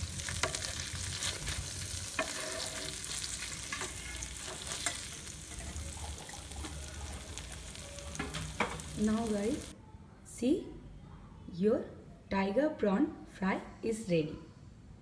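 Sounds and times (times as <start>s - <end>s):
prawns sizzling in oil: 0.0s - 9.7s
utensil tapping pan: 0.2s - 9.1s.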